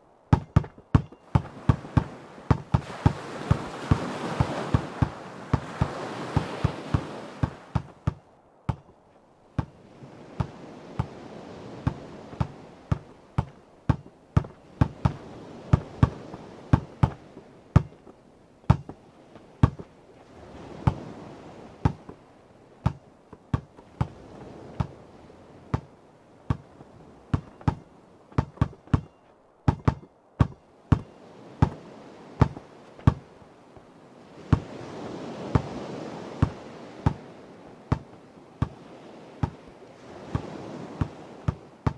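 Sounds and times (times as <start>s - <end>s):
ocean waves washing: 0.0s - 41.9s
basketball bouncing on hard ground: 0.3s - 9.0s, 9.6s - 9.8s, 10.4s - 11.2s, 11.8s - 17.2s, 17.8s - 18.1s, 18.7s - 19.0s, 19.6s - 19.9s, 20.8s - 21.0s, 21.8s - 22.2s, 22.8s - 25.0s, 25.7s - 25.9s, 26.5s - 31.8s, 32.4s - 33.3s, 34.5s - 34.8s, 35.5s - 35.7s, 36.4s - 37.2s, 37.9s - 38.8s, 39.4s - 39.6s, 40.3s - 41.9s.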